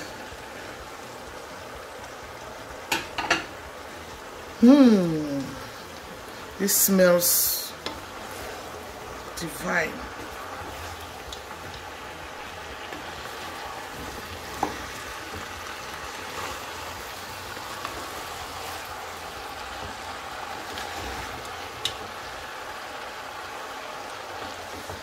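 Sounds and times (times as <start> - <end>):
food sizzling in a pot: 0.0 - 25.0
wooden spoon stirring: 5.3 - 25.0.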